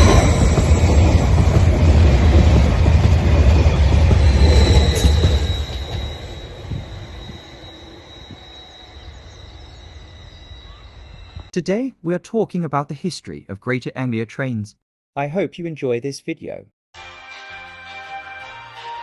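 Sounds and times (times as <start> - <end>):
train rumbling past: 0.0 - 11.5
thin high whine: 3.7 - 11.5.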